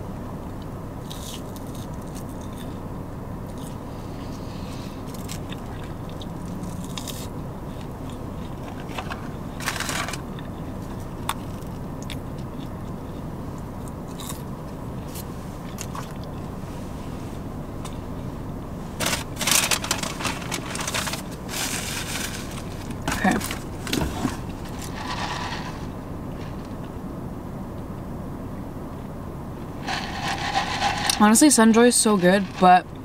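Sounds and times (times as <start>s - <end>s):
low steady hum: 0.0s - 33.0s
person chewing fries: 1.0s - 2.8s, 3.4s - 3.8s, 5.0s - 16.4s.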